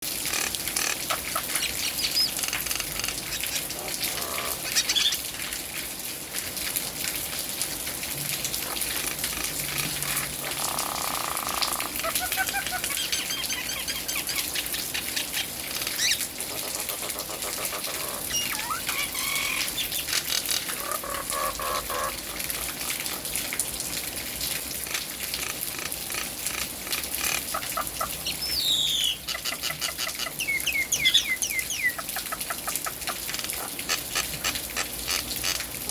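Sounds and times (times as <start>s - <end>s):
falling rain hiss: 0.1s - 35.9s
bird whistles and squawks: 0.8s - 5.2s, 10.1s - 16.3s, 17.9s - 22.1s, 27.6s - 32.1s.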